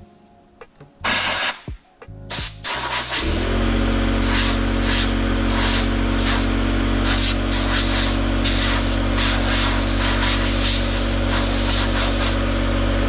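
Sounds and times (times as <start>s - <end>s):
air blow gun hissing blasts: 1.0s - 1.7s, 2.3s - 12.5s
air compressor motor running: 2.3s - 13.0s.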